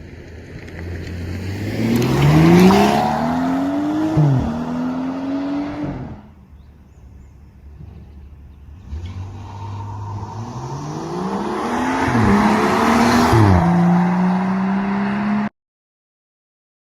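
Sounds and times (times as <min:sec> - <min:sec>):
car engine accelerating hard: 0:01.0 - 0:06.3, 0:08.8 - 0:15.5.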